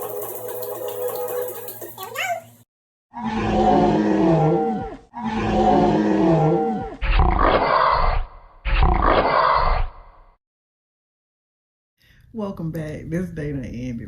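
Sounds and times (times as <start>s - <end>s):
loud roars: 3.2s - 10.0s.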